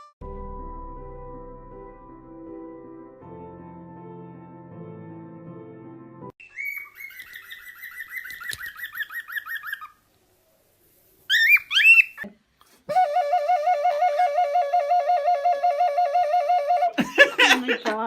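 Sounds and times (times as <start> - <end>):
parrot whistling: 6.4 - 10.0, 11.3 - 12.3.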